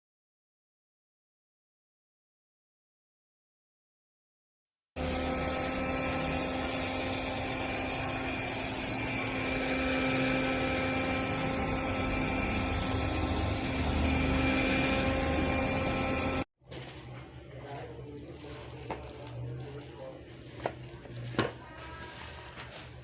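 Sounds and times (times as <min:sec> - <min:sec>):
handheld vacuum cleaner running: 0:05.0 - 0:16.5.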